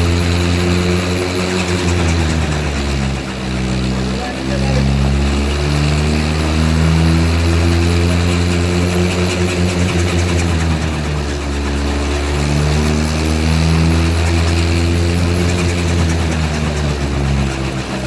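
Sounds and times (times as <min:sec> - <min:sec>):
helicopter engine and rotor drone: 0:00.0 - 0:18.0.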